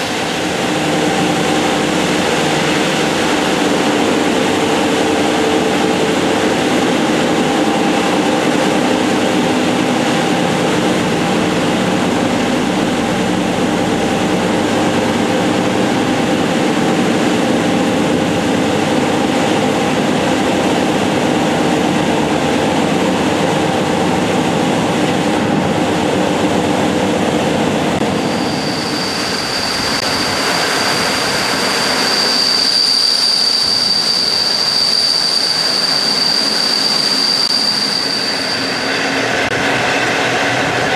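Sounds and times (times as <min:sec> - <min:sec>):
train rumbling on rails: 0:00.0 - 0:40.9
high wheel squeal: 0:28.0 - 0:39.5.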